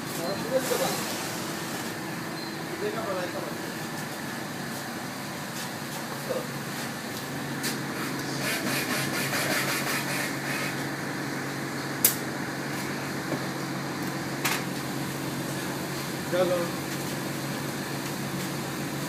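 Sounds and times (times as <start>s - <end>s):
low mechanical hum: 0.0s - 19.0s
sharp click: 12.0s - 12.2s.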